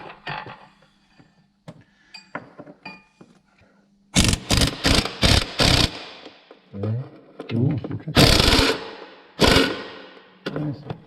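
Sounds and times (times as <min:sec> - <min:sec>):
loud rasping bursts: 0:04.2 - 0:06.1, 0:08.2 - 0:09.9.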